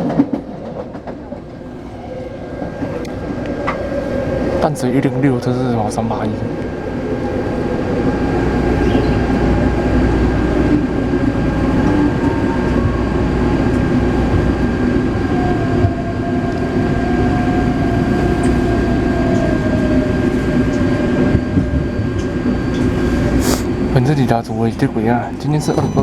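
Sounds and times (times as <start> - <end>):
train wheels and motors rumbling: 0.0 - 26.0
high whine of traction motors: 6.6 - 25.4.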